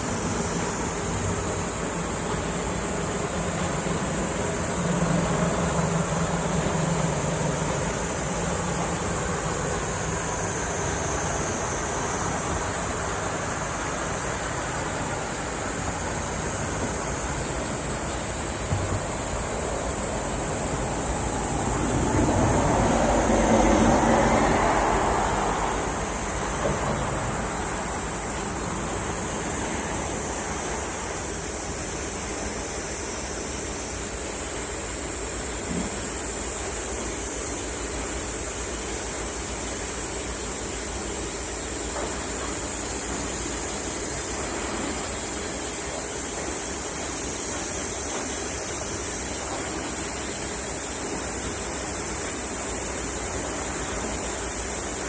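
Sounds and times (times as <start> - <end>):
low road traffic rumble: 0.0 - 33.2
cicadas buzzing: 0.0 - 55.0.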